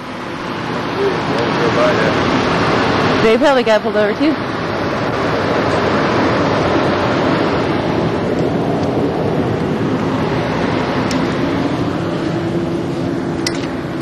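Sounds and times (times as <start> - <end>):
loud steady rushing noise: 0.0 - 14.0.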